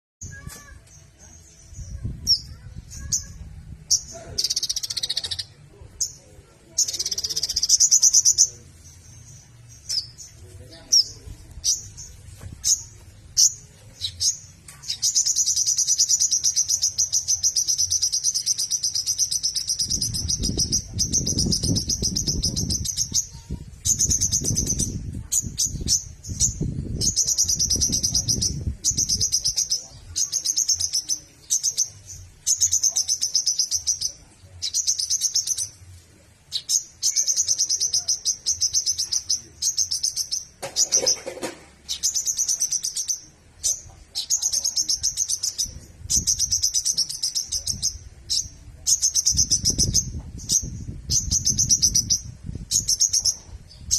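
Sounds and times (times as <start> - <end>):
songbird trilling: 0.2 - 35.8, 36.5 - 53.9.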